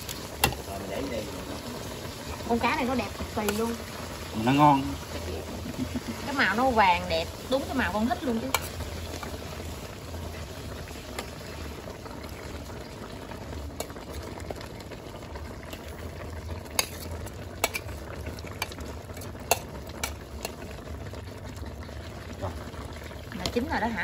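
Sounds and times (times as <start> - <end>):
fish sizzling in oil: 0.0 - 24.0
utensil clicking against pan: 16.7 - 17.9, 18.6 - 20.6.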